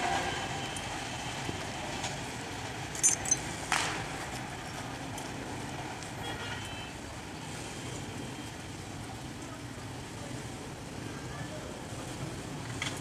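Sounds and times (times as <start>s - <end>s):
high chirps: 3.0s - 3.4s.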